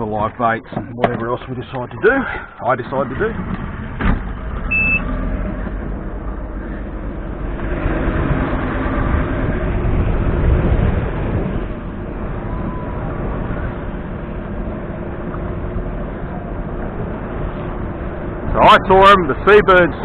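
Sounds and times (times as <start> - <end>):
boat motor running: 0.0 - 20.0
water noise: 0.0 - 20.0
wind: 0.0 - 20.0.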